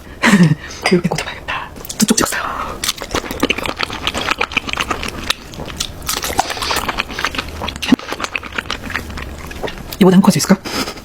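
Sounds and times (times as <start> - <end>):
chewing crispy food: 2.8 - 10.0.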